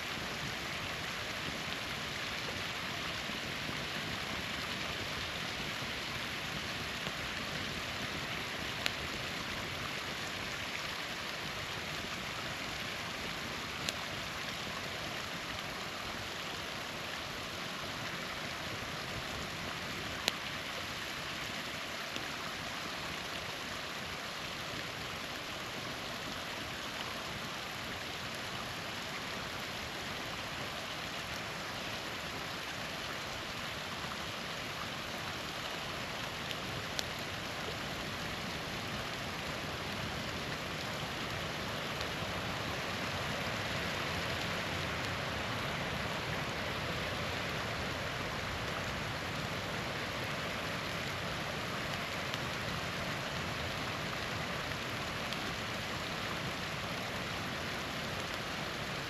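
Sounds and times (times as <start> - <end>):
small waterfall rushing: 0.0 - 59.0
campfire popping: 6.1 - 9.3.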